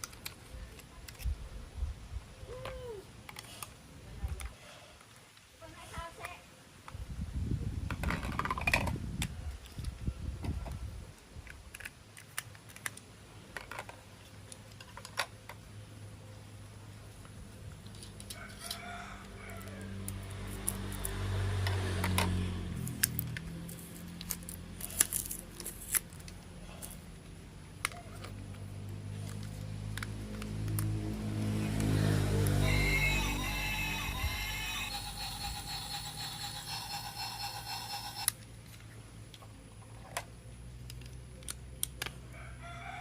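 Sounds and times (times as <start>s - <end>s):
plastic toy train parts rattling: 7.9s - 9.0s, 22.0s - 26.9s, 32.7s - 38.4s.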